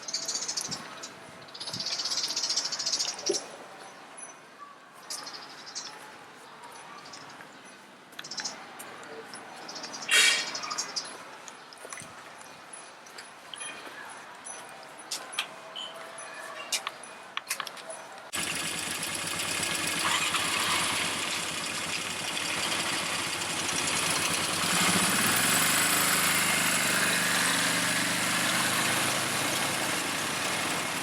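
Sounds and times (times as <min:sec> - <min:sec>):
atv engine running: 0:18.4 - 0:31.0.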